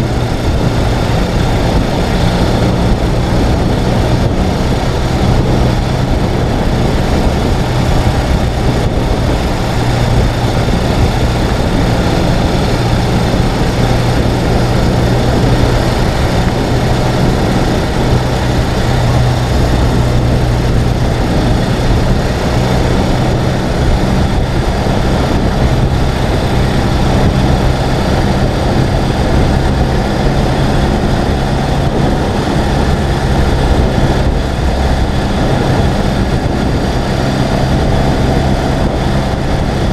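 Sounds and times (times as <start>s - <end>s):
motorcycle engine running: 0.0s - 39.9s
road noise rushing: 0.0s - 39.9s.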